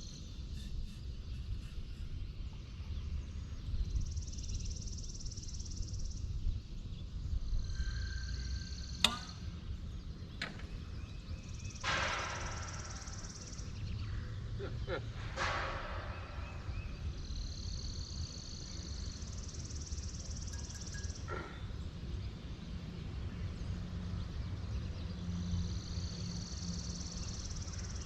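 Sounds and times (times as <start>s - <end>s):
low wind rumble: 0.0s - 20.4s
sharp click: 9.0s - 9.4s.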